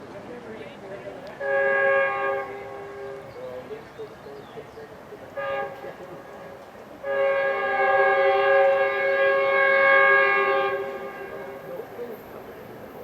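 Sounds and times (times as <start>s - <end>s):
train air horn blasts: 1.4s - 3.4s, 5.4s - 11.8s.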